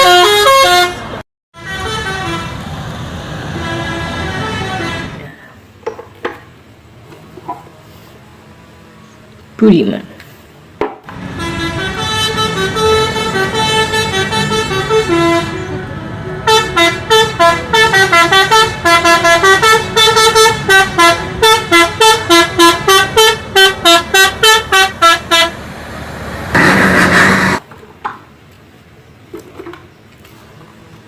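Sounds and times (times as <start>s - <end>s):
bus melody horn tooting: 0.0s - 2.8s, 3.5s - 5.4s, 11.1s - 25.6s, 26.5s - 27.6s.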